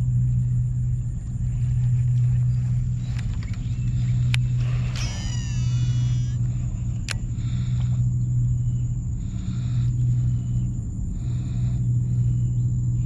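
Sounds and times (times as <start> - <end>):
steady low motor hum: 0.0 - 13.0
fishing reel whining: 2.9 - 7.9.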